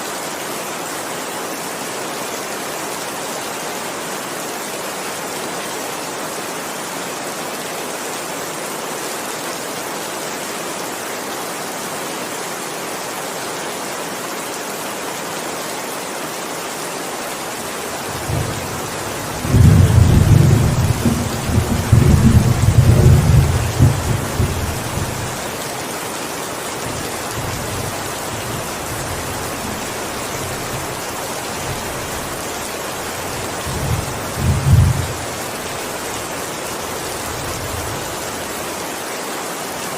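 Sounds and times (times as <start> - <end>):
heavy rain: 0.0 - 39.9
thunder rumbling: 18.1 - 25.4, 33.2 - 35.4.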